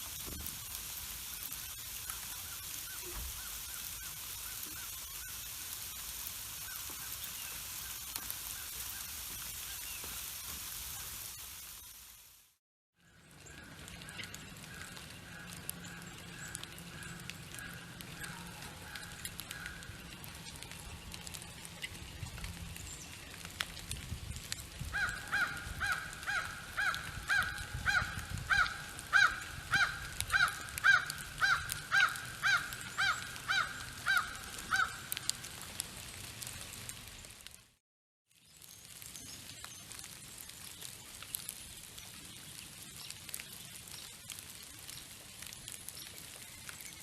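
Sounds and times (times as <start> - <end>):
faint bird calls: 1.3 - 10.2, 24.9 - 35.3.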